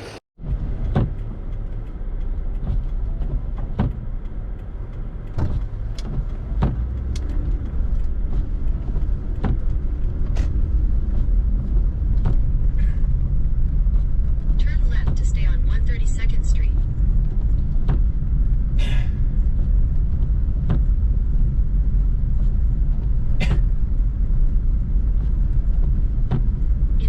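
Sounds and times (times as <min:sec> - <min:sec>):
car driving on snowy road: 0:00.0 - 0:27.0.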